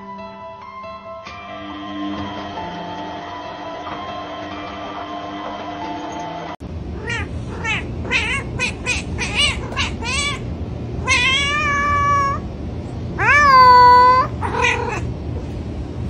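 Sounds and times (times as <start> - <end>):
cat meowing: 7.0 - 12.4, 13.2 - 15.1.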